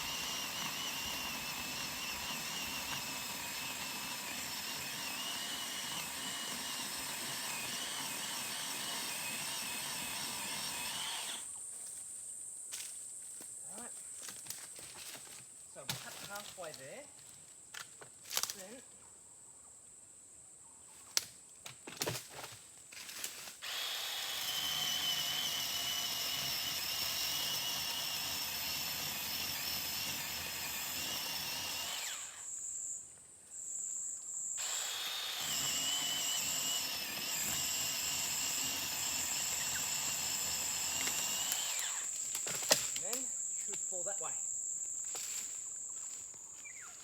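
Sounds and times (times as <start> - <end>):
chainsaw cutting wood: 0.0 - 11.5, 23.3 - 33.0, 34.6 - 43.2.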